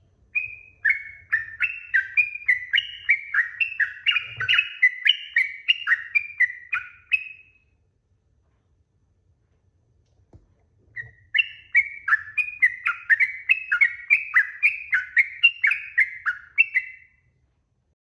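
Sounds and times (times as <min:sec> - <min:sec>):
bulbul singing whistled notes: 0:00.4 - 0:07.6, 0:11.0 - 0:17.2.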